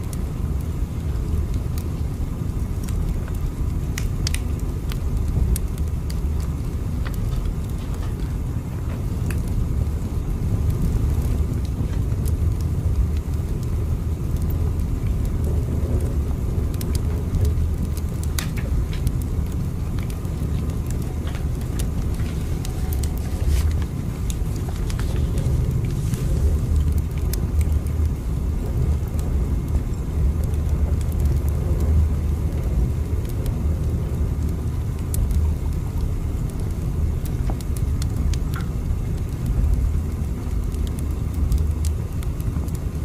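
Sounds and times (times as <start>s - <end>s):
light clicks and creaks: 4.0s - 9.6s, 15.4s - 35.8s, 37.2s - 39.8s
train rumbling: 20.9s - 27.4s.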